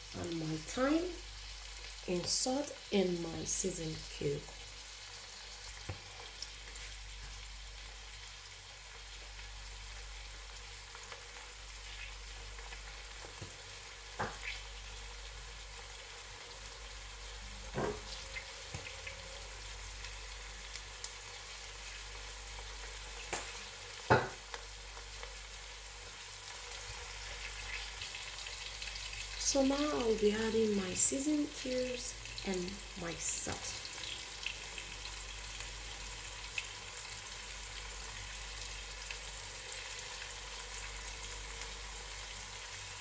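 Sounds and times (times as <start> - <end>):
vegetables sizzling in oil: 0.0 - 43.0.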